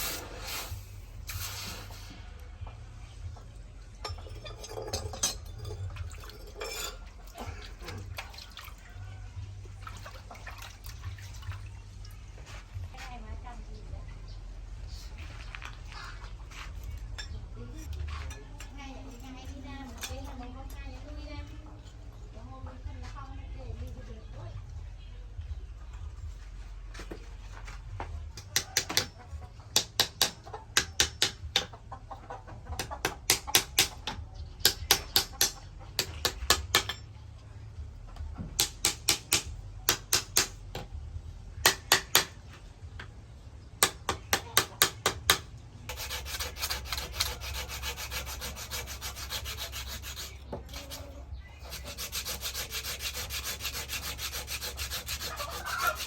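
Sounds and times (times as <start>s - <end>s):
rapid scraping on a blade: 45.9s - 56.0s.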